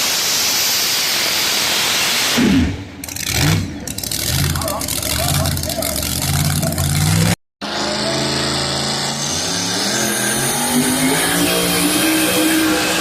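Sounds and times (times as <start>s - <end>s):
truck engine running hard: 2.6s - 13.0s.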